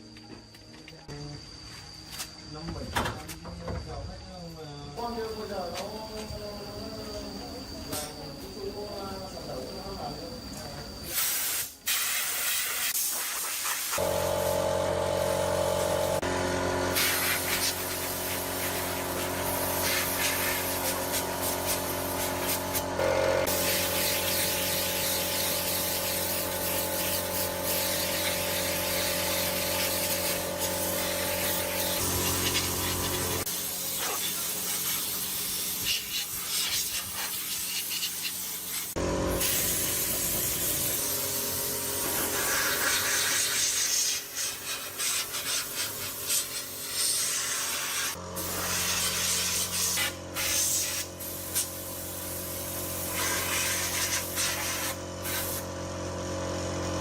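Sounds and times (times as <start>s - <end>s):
steady machine hum: 14.0s - 33.8s, 39.0s - 42.4s
hissing rubbing and scraping: 29.9s - 39.6s.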